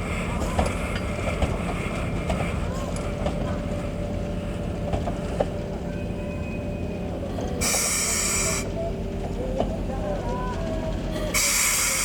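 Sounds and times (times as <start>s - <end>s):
locomotive venting hiss: 7.6s - 8.8s, 11.3s - 12.0s.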